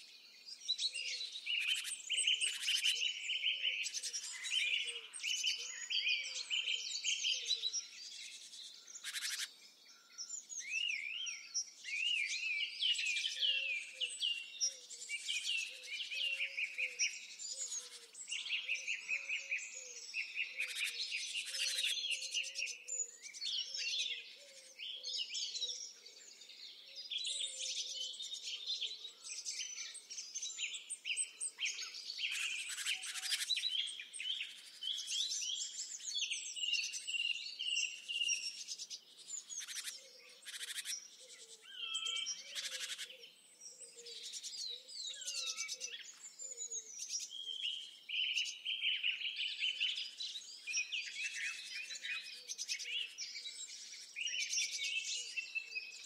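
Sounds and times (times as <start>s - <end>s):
birds chirping and whistling: 0.6s - 56.0s
lower repeated bird calls: 0.8s - 56.0s.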